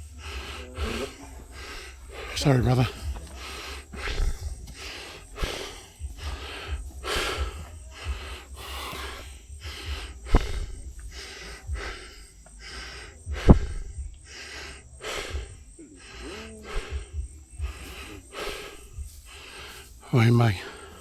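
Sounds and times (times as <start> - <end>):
person breathing hard: 0.0 - 21.0
sharp thumps: 10.2 - 11.0.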